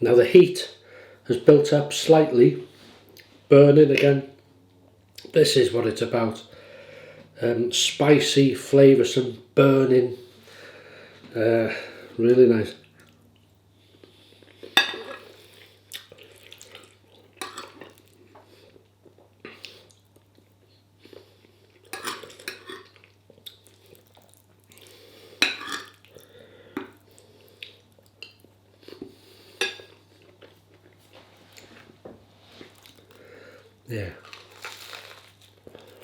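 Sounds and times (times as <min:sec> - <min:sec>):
cutlery clinking on a plate: 0:22.0 - 0:22.9, 0:25.4 - 0:26.0.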